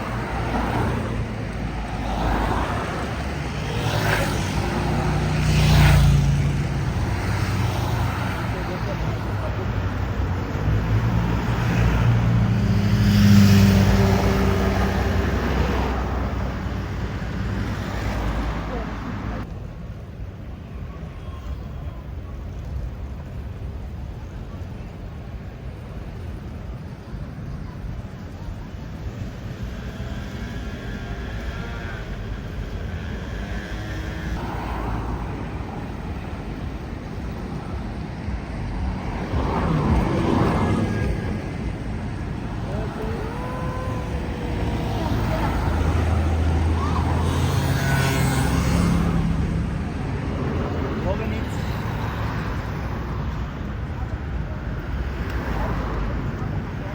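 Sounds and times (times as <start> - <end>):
background traffic: 0.0 - 56.9
faint voices of passers-by: 0.0 - 56.9
vehicle driving past: 32.8 - 53.1.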